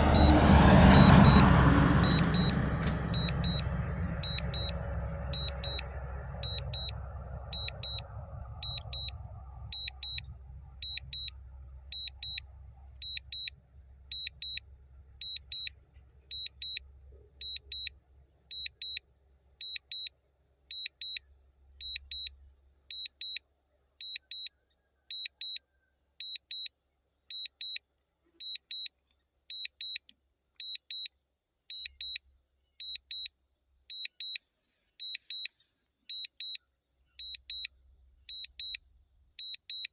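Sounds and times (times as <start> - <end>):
low rumble: 0.0 - 14.2
short high-pitched beeps: 0.1 - 14.6, 16.3 - 16.8, 38.3 - 38.8.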